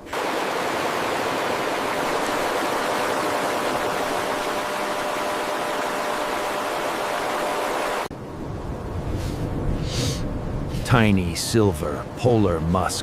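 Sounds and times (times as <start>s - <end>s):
loud steady rushing noise: 0.0s - 8.2s.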